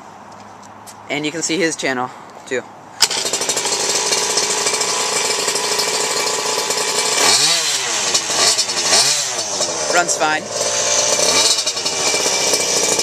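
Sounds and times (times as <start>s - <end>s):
small two-stroke engine revving: 3.0s - 13.0s.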